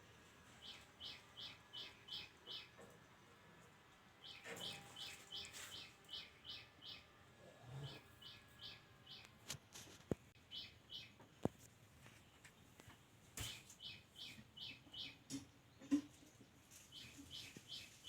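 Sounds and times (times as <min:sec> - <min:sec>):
small bird chirping: 0:00.6 - 0:03.1, 0:04.2 - 0:09.4, 0:10.3 - 0:11.5, 0:13.4 - 0:16.0, 0:16.8 - 0:18.0.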